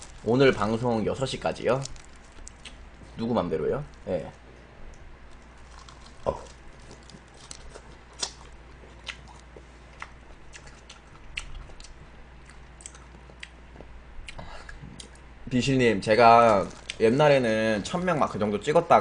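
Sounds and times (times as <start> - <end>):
soft crunches: 0.0 - 4.0, 5.3 - 9.7, 16.3 - 17.2
person chewing: 1.8 - 3.2, 5.3 - 13.6, 16.5 - 17.0.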